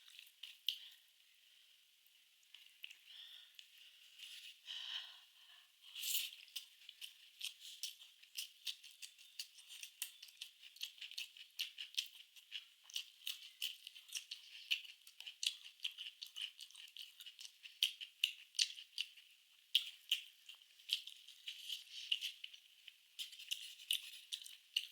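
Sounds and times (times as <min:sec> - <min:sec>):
chewing mouth clicks and smacks: 0:02.4 - 0:03.0, 0:06.2 - 0:24.9.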